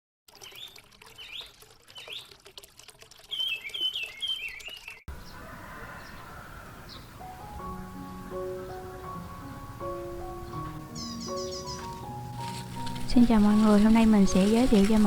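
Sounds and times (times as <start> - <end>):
birds chirping: 3.2 - 15.0
repeated falling bird calls: 3.3 - 7.2.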